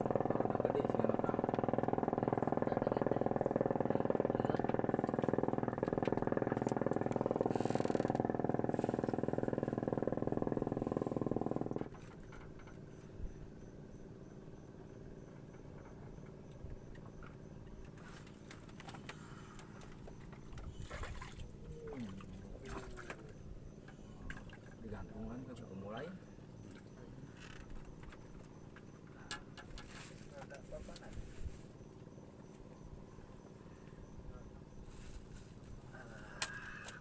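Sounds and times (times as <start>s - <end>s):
engine running steadily: 0.0s - 25.1s.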